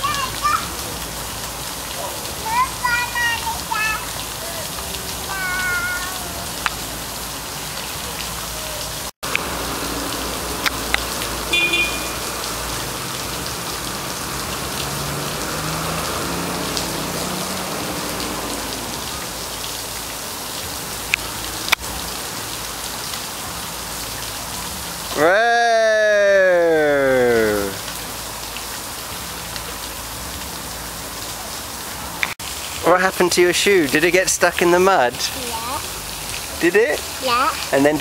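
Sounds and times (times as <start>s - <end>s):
steady rain falling: 0.0s - 38.0s.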